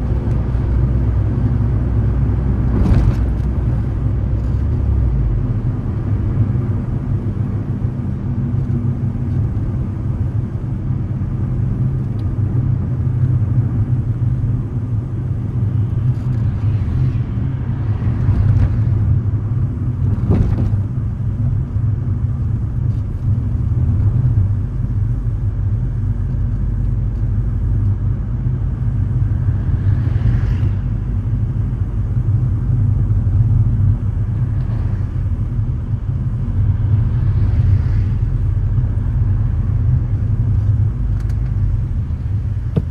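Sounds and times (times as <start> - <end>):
car engine and road rumble: 0.0 - 42.9
passing traffic noise: 0.0 - 42.9
sharp thump: 42.6 - 42.9.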